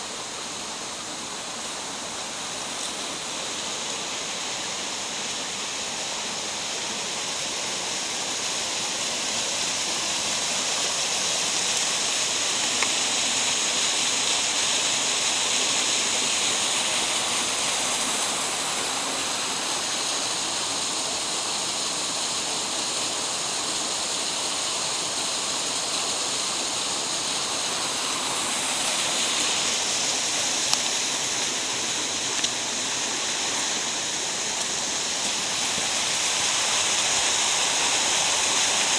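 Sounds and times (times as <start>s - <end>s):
stream water rushing: 0.0s - 38.9s
faint clicks: 30.5s - 31.6s.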